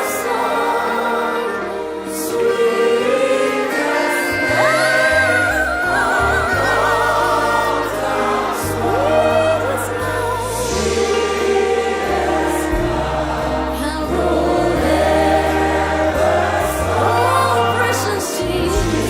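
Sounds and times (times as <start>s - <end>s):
group singing a hymn: 0.0s - 19.0s
instrumental backing: 0.0s - 19.0s
low bass notes: 4.5s - 19.0s.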